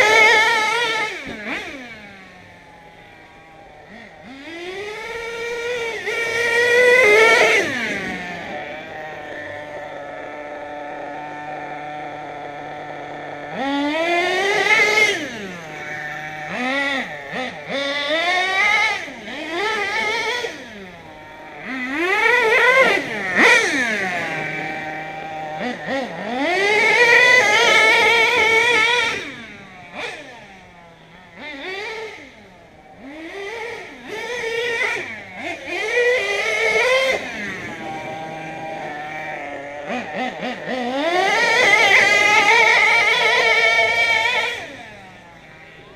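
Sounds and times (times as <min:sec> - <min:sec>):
model car nitro engine revving: 0:00.0 - 0:45.9.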